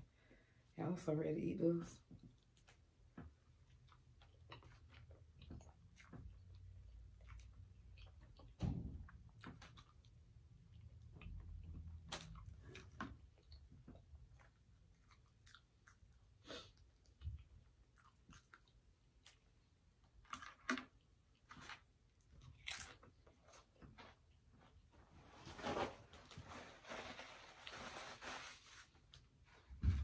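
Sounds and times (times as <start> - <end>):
person chewing: 2.3 - 19.7, 22.2 - 23.8.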